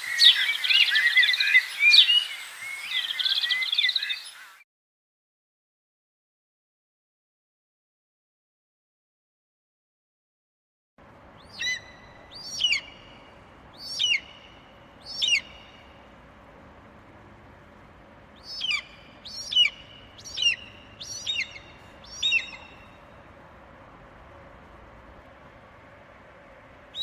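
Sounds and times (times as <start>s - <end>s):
peacock calling: 0.0s - 4.6s, 11.4s - 16.1s, 18.4s - 23.3s.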